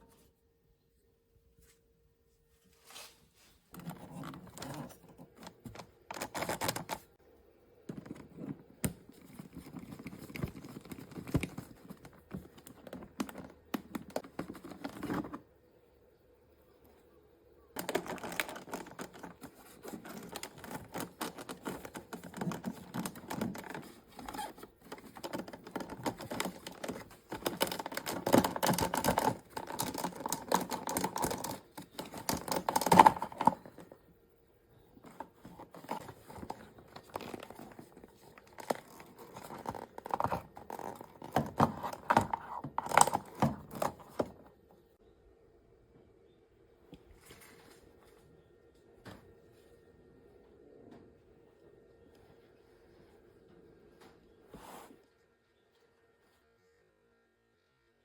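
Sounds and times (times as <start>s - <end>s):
hands handling objects: 2.7s - 7.2s, 7.8s - 15.5s, 17.8s - 34.0s, 34.7s - 44.6s.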